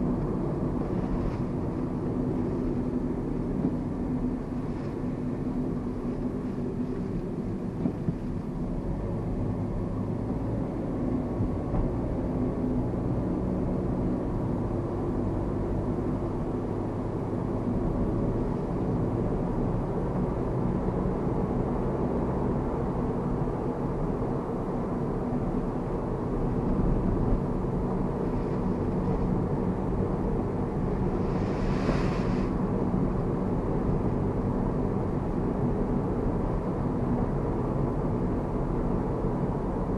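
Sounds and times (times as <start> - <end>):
car engine and road rumble: 0.0 - 39.9
brief hiss: 31.2 - 32.6.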